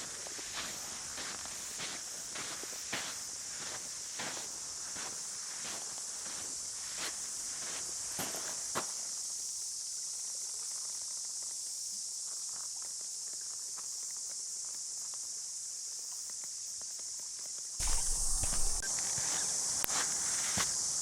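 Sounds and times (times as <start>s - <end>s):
high-pitched insect chorus: 0.0s - 13.1s, 17.8s - 21.0s
faint crunches: 17.8s - 20.7s.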